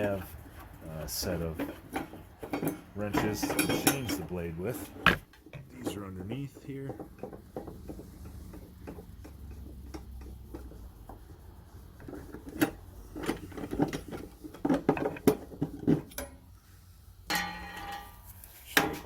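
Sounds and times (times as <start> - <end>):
metal wrenches clinking: 1.1 - 6.1, 17.3 - 19.0.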